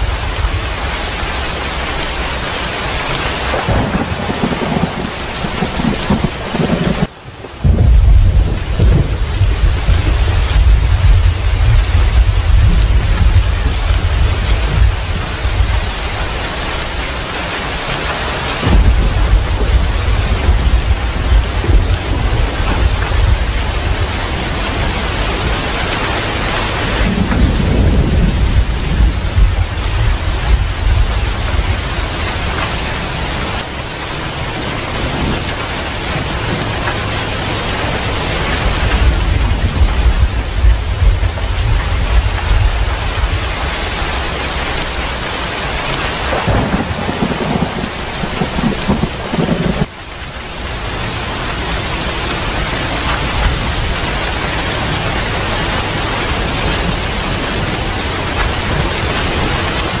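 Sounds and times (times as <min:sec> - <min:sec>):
heavy rain: 0:00.0 - 1:00.0
rolling thunder: 0:03.4 - 0:16.6, 0:18.6 - 0:33.4, 0:36.2 - 0:45.1, 0:46.2 - 0:49.9.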